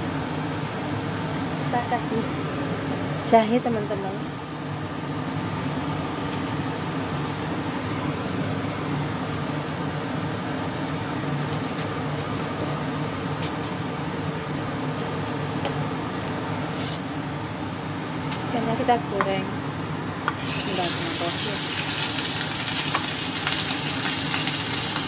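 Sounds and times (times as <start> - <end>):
ginger sizzling in oil: 3.0 - 12.6, 20.3 - 25.0
oil popping and crackling: 20.3 - 25.0.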